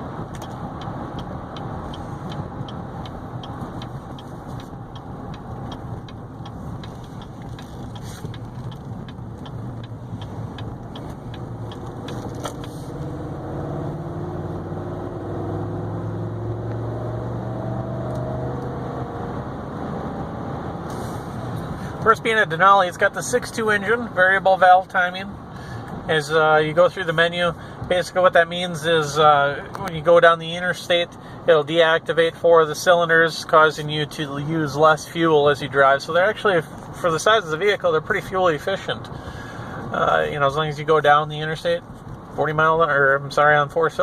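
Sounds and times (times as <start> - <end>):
car engine running: 0.0 - 31.7
tyre and road noise: 0.0 - 44.0
regular ticking: 0.2 - 15.7.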